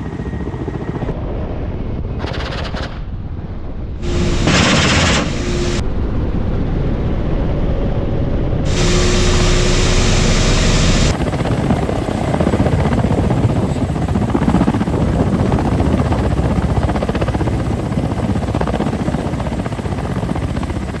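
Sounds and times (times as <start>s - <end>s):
helicopter rotors and engines: 0.0s - 21.0s
hiss: 8.7s - 11.1s.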